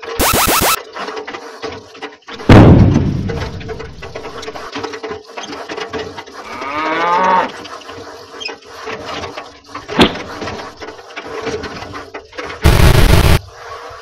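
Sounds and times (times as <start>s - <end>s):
cow mooing: 6.4s - 7.6s.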